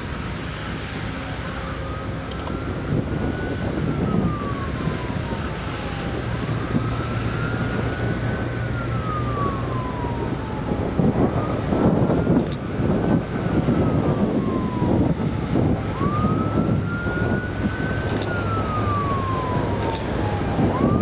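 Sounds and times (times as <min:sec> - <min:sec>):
siren wailing: 0:00.0 - 0:21.0
steady rumble of traffic: 0:00.0 - 0:21.0.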